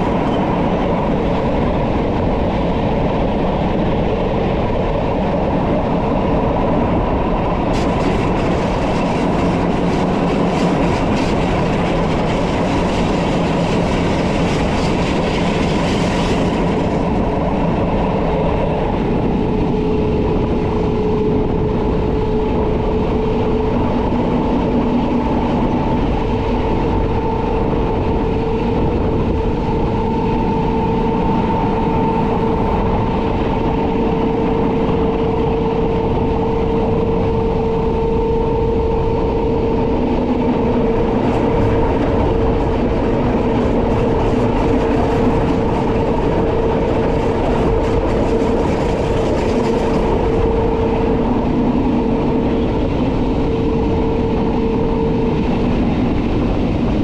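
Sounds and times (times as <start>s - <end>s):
steady whine: 0.0s - 57.0s
train wheels rumbling on rail: 0.0s - 57.0s.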